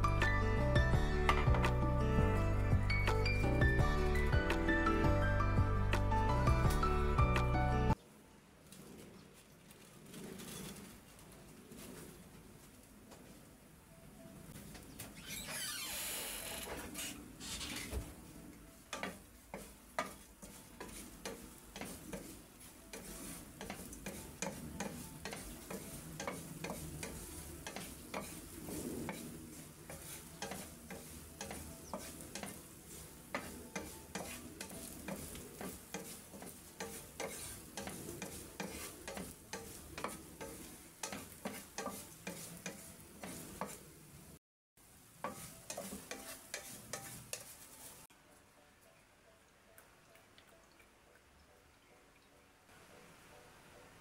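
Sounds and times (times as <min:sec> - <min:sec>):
wooden spatula scraping pan: 0:16.8 - 0:18.2, 0:18.9 - 0:43.9, 0:45.2 - 0:48.1
shrimp sizzling in oil: 0:18.8 - 0:48.1.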